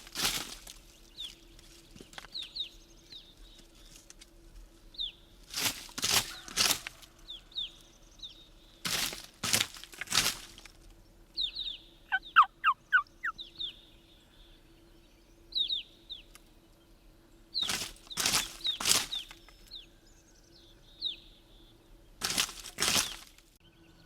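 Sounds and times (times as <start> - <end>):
songbird chirps: 0.0 - 24.0
turkey gobbling: 12.1 - 13.4
turkey yelps: 12.1 - 13.4.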